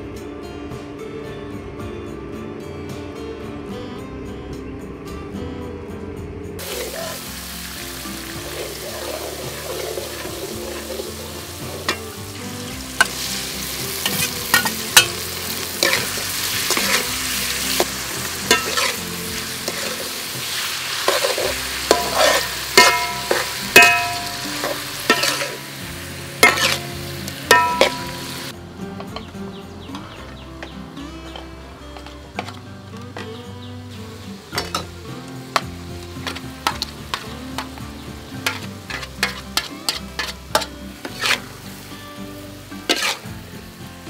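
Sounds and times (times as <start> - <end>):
metal ladle scraping a wok: 6.6 - 28.5, 34.6 - 41.9, 42.7 - 43.4
shrimp sizzling in a wok: 6.6 - 29.3, 30.1 - 44.0.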